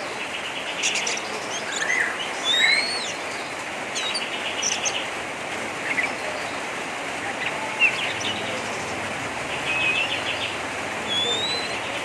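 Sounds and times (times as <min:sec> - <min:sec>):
bird harsh chattering calls: 0:00.7 - 0:03.2, 0:07.8 - 0:12.0.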